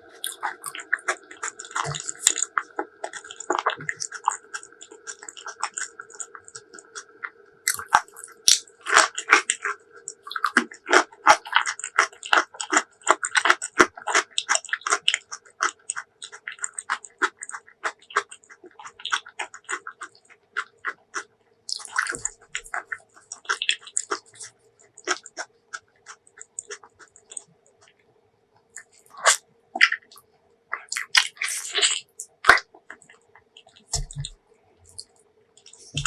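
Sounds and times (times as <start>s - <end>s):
close chewing and lip smacking: 0.0s - 36.0s.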